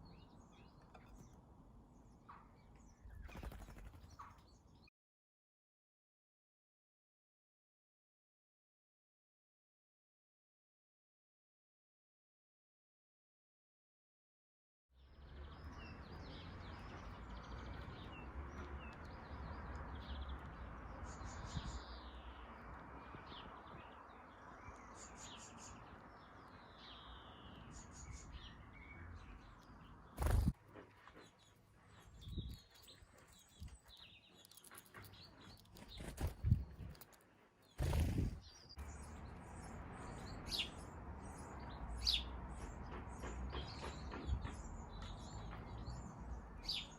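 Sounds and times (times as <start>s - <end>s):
small birds chirping: 0.0s - 4.9s, 15.0s - 46.9s.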